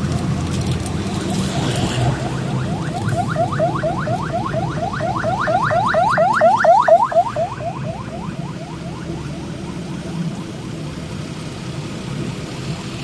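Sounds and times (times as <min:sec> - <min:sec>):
low engine rumble: 0:00.0 - 0:13.0
electronic alarm chirping: 0:02.2 - 0:08.0.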